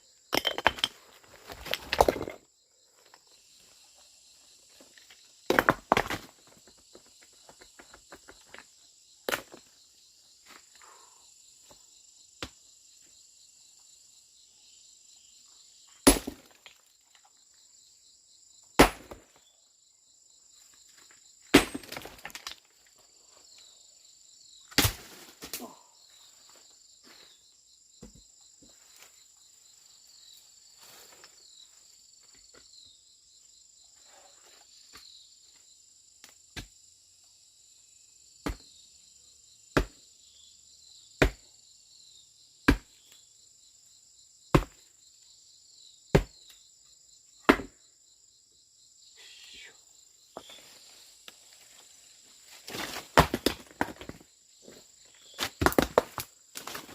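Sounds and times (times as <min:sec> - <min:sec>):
insect chirring: 0:19.4 - 0:53.1.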